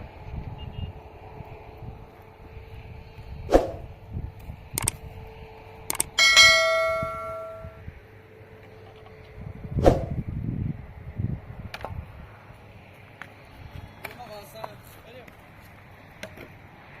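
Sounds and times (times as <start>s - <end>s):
shovel blade clang ringing: 6.0s - 7.8s.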